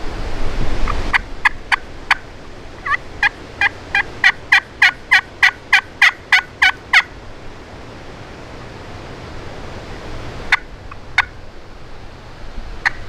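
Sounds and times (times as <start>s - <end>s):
wind rumbling on microphone: 0.0s - 13.0s
turkey yelps: 1.1s - 2.2s, 2.8s - 7.1s, 10.5s - 11.4s.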